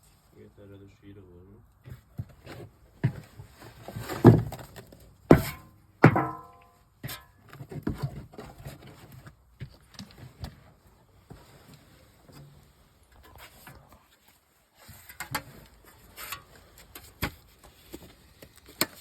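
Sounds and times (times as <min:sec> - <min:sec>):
aluminum sheet clanging: 0:05.3 - 0:06.7.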